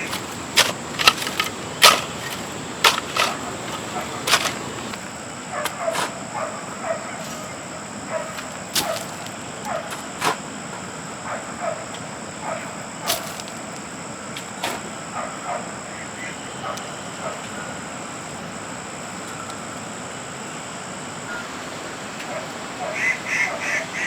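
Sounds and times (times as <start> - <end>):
farm animals calling: 0.0 - 5.0, 21.3 - 24.0.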